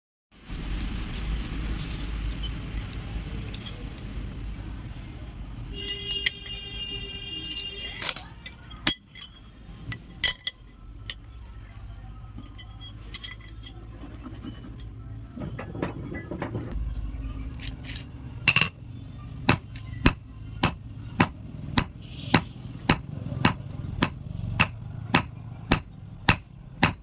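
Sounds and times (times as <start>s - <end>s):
metal clinks and knocks: 5.8s - 6.8s, 7.4s - 17.0s, 17.6s - 18.8s
metal piece ringing: 12.4s - 18.8s, 19.5s - 27.0s
low rumble: 15.3s - 19.3s.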